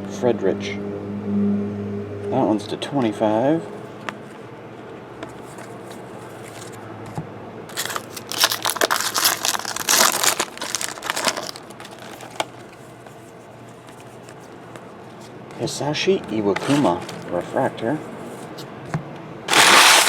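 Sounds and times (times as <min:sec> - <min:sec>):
plastic packaging crinkling: 0:07.7 - 0:13.0, 0:16.5 - 0:17.4, 0:19.5 - 0:20.0.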